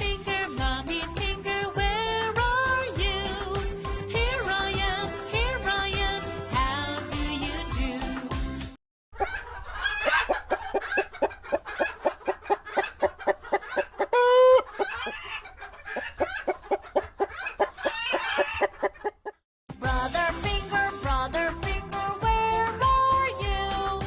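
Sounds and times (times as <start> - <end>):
children's song music: 0.0 - 8.8, 19.7 - 24.0
chicken clucking: 9.2 - 19.4.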